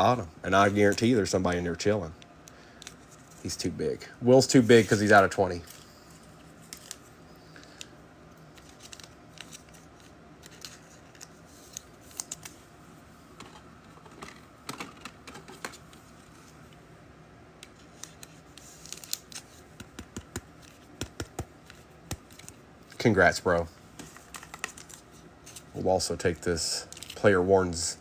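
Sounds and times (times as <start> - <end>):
cards sliding rustle: 2.5 - 3.7, 4.5 - 12.6, 17.6 - 27.4
cards clicking and tapping: 17.6 - 22.6, 24.0 - 25.0.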